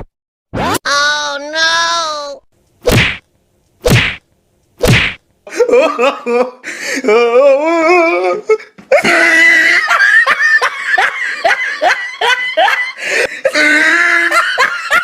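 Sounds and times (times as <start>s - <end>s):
person laughing loudly: 5.5s - 7.3s, 8.9s - 15.0s.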